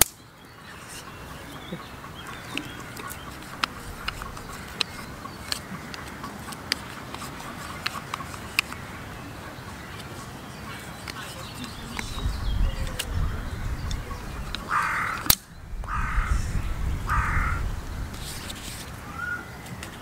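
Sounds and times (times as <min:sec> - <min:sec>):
steady outdoor hiss: 0:00.0 - 0:20.0
birds chirping and clucking: 0:00.2 - 0:20.0.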